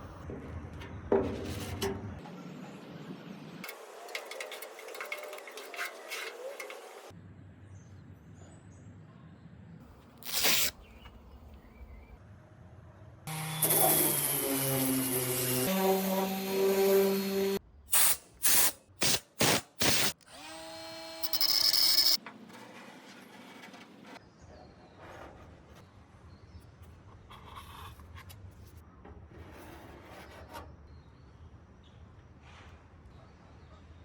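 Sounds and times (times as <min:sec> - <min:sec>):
rubbing and scraping on metal: 0:00.3 - 0:02.2, 0:03.6 - 0:07.1, 0:22.4 - 0:26.0, 0:27.0 - 0:30.9
electric power tool whining: 0:13.3 - 0:17.6, 0:19.8 - 0:22.2.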